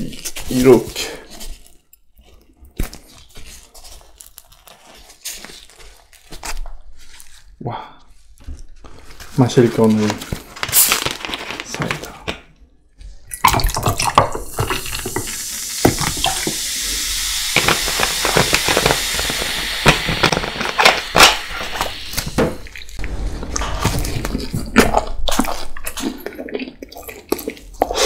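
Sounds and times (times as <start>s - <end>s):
soda pouring and splashing: 13.3s - 28.0s
soda fizzing in a glass: 13.6s - 23.0s.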